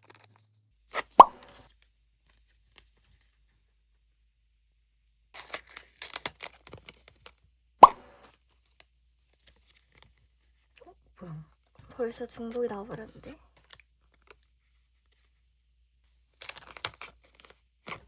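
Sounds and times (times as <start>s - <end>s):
loud plop: 1.2s - 1.5s, 7.8s - 8.2s
plastic packaging crinkling and tearing: 16.3s - 18.0s.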